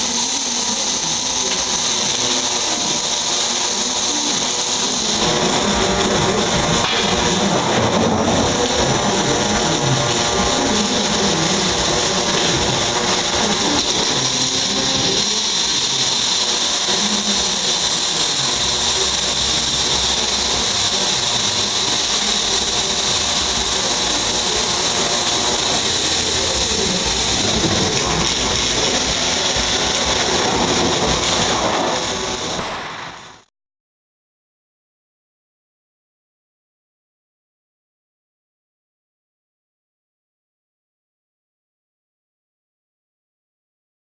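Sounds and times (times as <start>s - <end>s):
welding arc hissing buzz: 0.0s - 33.5s.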